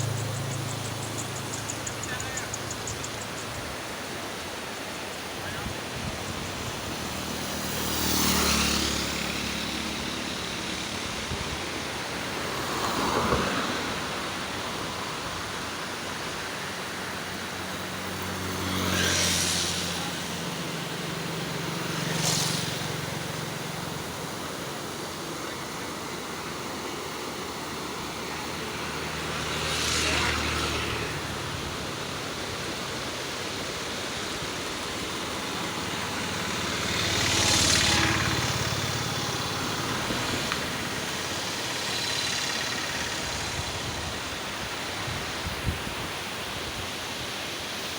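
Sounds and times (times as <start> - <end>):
flowing water rushing: 0.0 - 47.9
vehicles passing by: 0.0 - 47.9.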